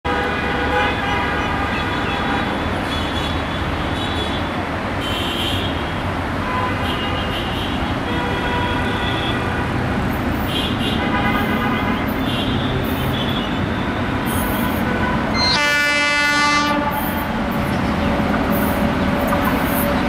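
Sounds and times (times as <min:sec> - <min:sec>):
diesel locomotive engine rumbling: 0:01.3 - 0:20.0.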